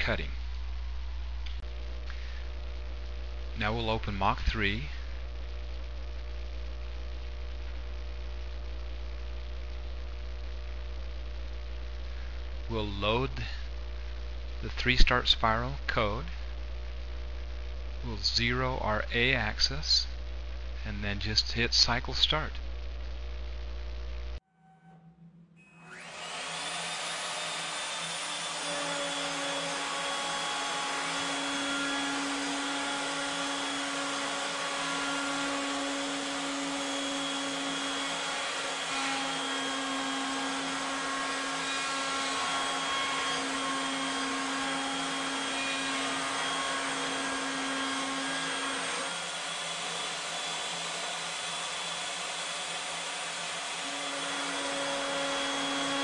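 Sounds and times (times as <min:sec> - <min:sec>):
low hum: 0:00.0 - 0:26.2
wood router high whine: 0:25.8 - 0:56.0.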